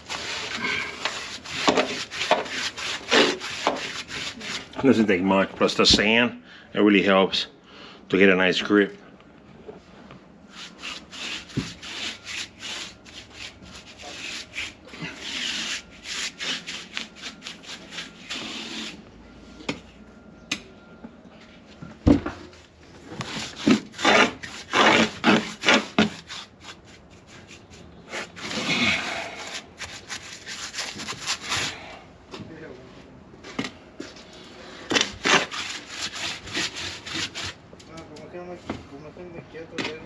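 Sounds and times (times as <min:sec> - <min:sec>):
paint roller rubbing gritty paint: 0:00.0 - 0:04.8, 0:10.5 - 0:19.0, 0:23.0 - 0:31.8, 0:35.1 - 0:37.6.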